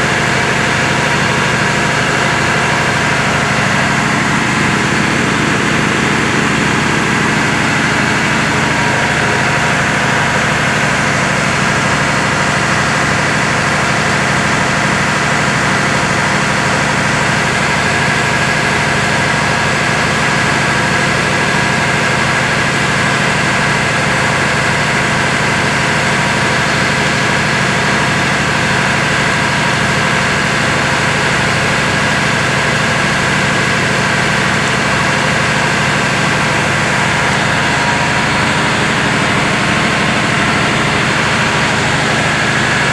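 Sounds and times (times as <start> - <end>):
diesel engine running: 0.0 - 42.9
steady high whine: 35.3 - 42.9.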